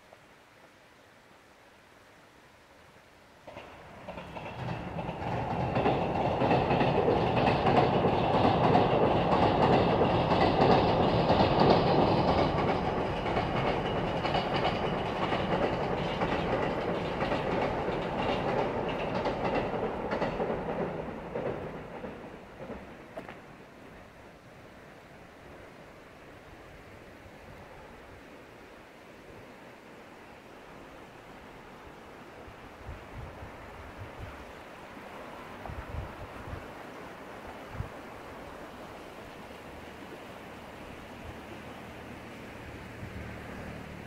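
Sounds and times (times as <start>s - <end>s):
train passing: 3.3s - 44.0s.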